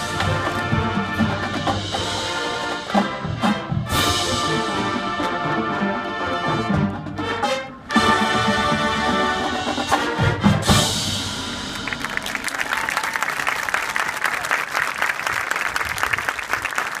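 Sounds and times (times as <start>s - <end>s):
brass band music: 0.0s - 13.6s
audience applause: 11.6s - 17.0s.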